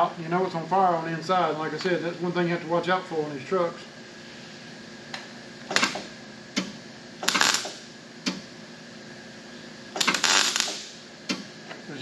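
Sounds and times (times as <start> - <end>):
welder crackling: 5.7 - 8.4, 9.9 - 11.0.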